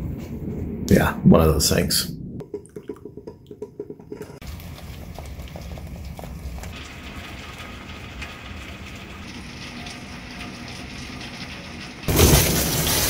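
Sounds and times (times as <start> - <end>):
faint low rumble: 0.0 - 2.4.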